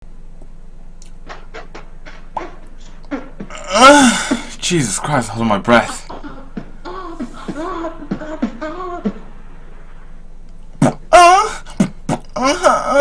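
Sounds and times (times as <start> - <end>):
person crying out: 3.5 - 6.1, 10.8 - 13.0
person moaning: 3.5 - 6.3, 10.8 - 13.0.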